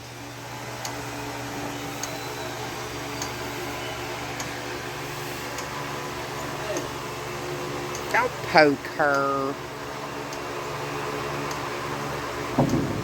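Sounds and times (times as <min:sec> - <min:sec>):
vacuum pump hum: 0:04.4 - 0:13.0.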